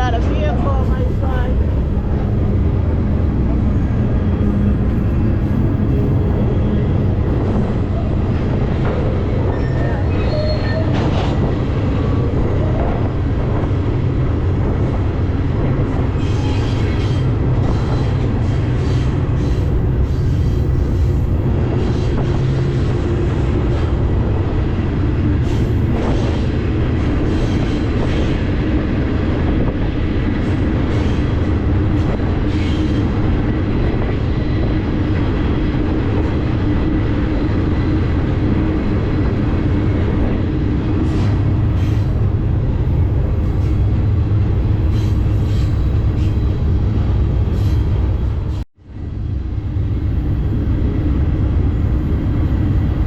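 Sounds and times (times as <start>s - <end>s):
train clanks: 0.0s - 48.6s
freight train rumbling: 0.0s - 53.0s
train squeals: 9.4s - 11.3s, 16.1s - 22.7s, 27.2s - 28.4s, 30.8s - 33.2s, 41.0s - 42.3s, 44.9s - 46.8s, 47.5s - 48.6s.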